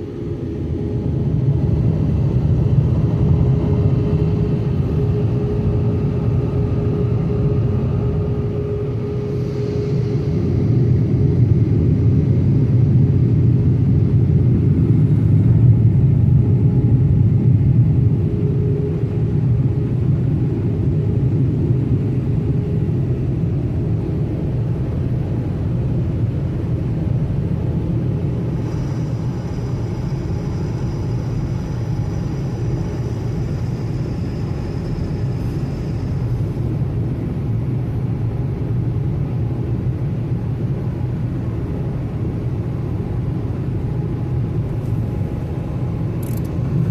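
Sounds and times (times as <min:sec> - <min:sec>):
faint high whine: 0:00.0 - 0:46.9.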